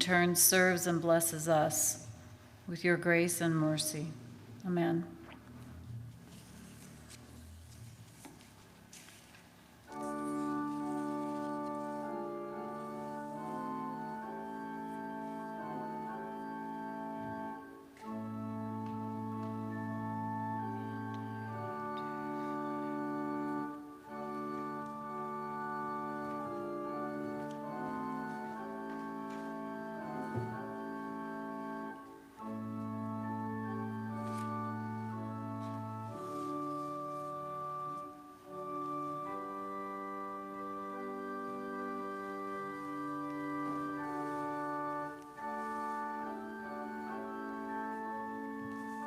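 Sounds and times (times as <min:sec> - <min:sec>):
organ playing held chords: 0:09.8 - 0:49.0.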